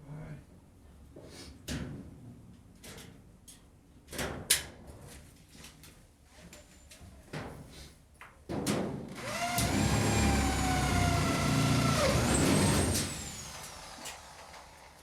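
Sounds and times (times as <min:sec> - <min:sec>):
power tool motor running: 0:09.2 - 0:15.0.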